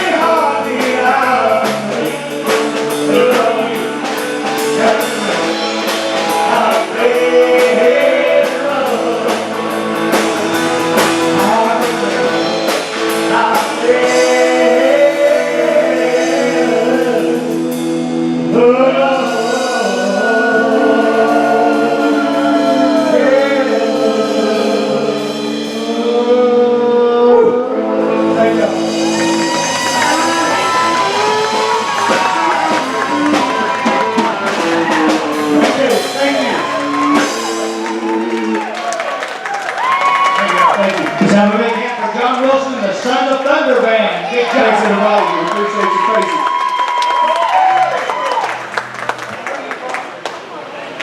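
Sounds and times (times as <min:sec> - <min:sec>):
drum kit beat: 0:00.0 - 0:26.4, 0:28.2 - 0:39.0
lead singer singing: 0:00.0 - 0:38.8
guitar: 0:00.0 - 0:49.7.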